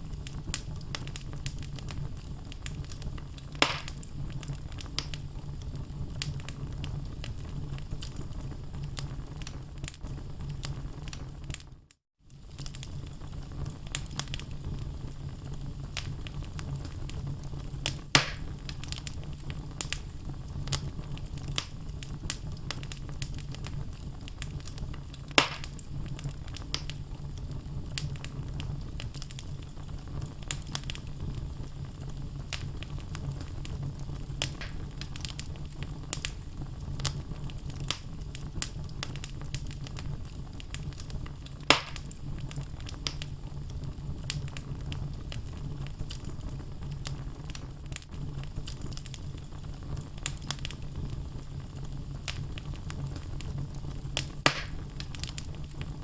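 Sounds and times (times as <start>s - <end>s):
loud sharp pops of fire: 0.0s - 11.7s, 12.3s - 56.0s
low rumble of flame: 0.0s - 56.0s
logs crackling: 0.1s - 5.2s, 17.8s - 19.2s, 19.8s - 27.0s, 32.5s - 36.4s, 40.6s - 43.3s, 54.1s - 55.9s.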